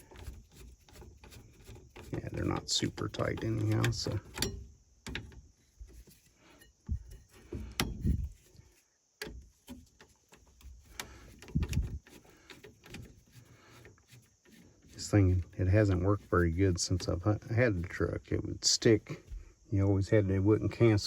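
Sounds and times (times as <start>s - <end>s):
hand tools clicking and clunking: 0.0s - 19.5s
dull thuds: 6.8s - 8.4s.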